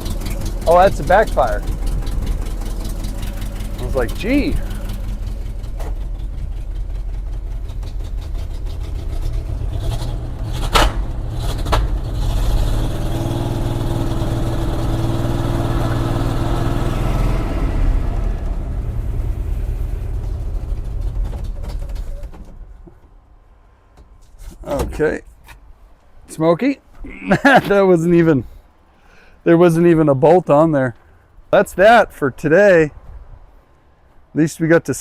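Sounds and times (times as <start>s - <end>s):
engine running rough: 0.0s - 23.0s.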